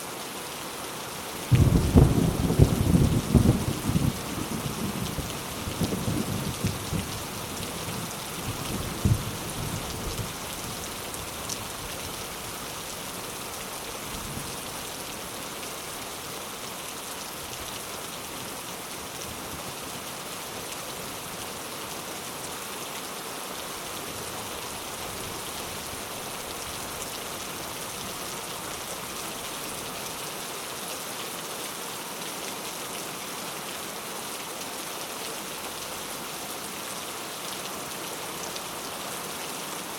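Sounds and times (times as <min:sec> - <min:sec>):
steady rain falling: 0:00.0 - 0:39.9
sharp loud thunder crack: 0:01.5 - 0:04.1
low thunder rumble: 0:01.5 - 0:07.2.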